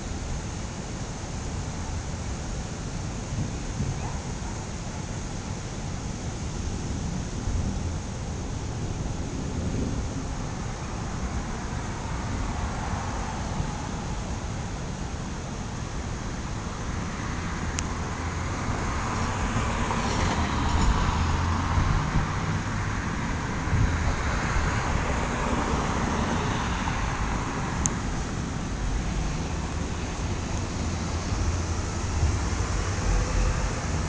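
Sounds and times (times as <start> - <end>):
road traffic: 0.0 - 34.0
vehicle passing: 18.0 - 34.0.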